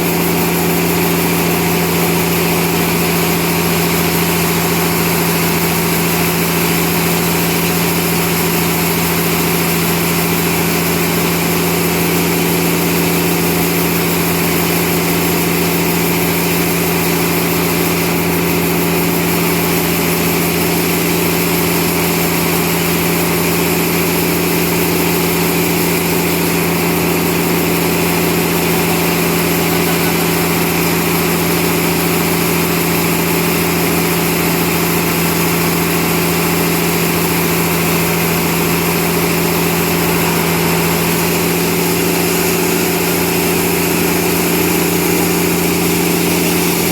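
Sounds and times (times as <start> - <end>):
sawmill machinery humming: 0.0 - 46.9.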